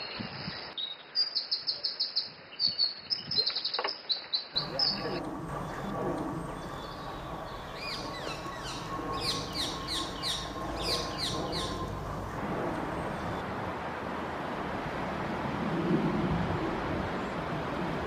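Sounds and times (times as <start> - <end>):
small songbird chirping: 0.0 - 13.4
low background rumble: 4.6 - 13.4.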